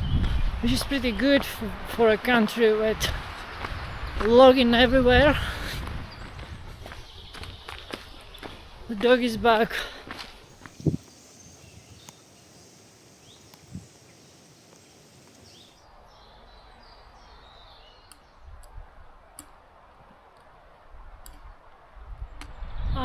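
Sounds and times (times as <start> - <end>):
low even hiss: 10.6 - 15.8
bird chirps: 10.6 - 18.4.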